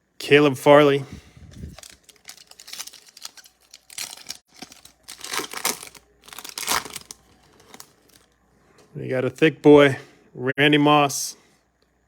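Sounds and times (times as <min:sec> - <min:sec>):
foil wrapper crinkling and tearing: 0:01.6 - 0:08.3.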